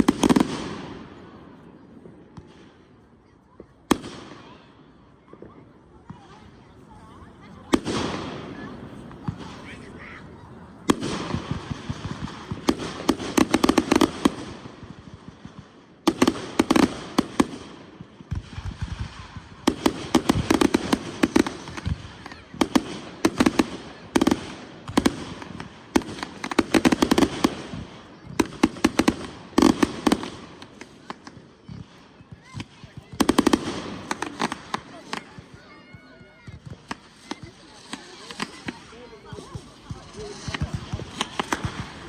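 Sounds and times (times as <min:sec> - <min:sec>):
fireworks bangs and crackle: 0:00.0 - 0:42.0
fireworks hissing: 0:16.1 - 0:42.0.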